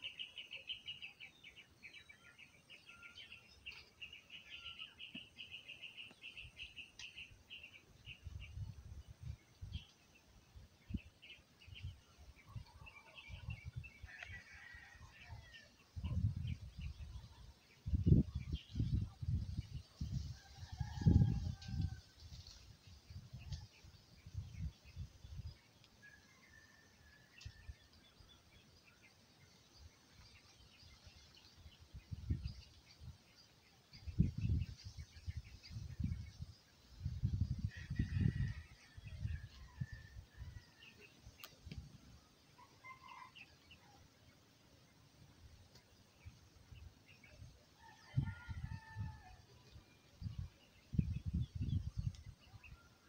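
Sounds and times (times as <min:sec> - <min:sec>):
small birds chirping: 0:00.0 - 0:26.6.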